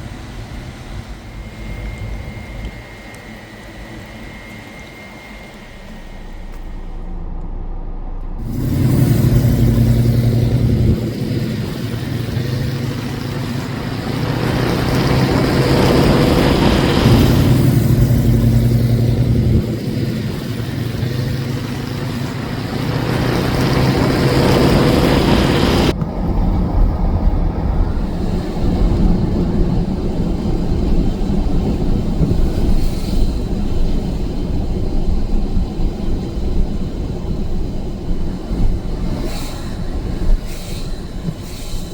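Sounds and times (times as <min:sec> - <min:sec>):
car engines revving: 0:00.0 - 0:41.9.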